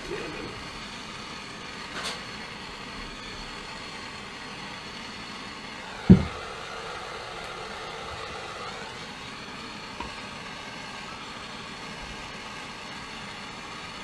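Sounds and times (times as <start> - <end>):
steady background hum: 0.0 - 14.0
loud knock: 6.0 - 6.4.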